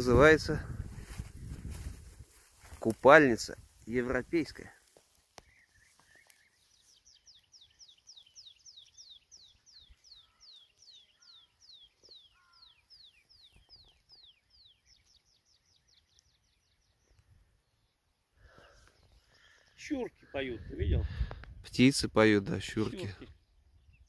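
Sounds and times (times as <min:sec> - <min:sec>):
faint low bird calls: 0:04.7 - 0:20.8.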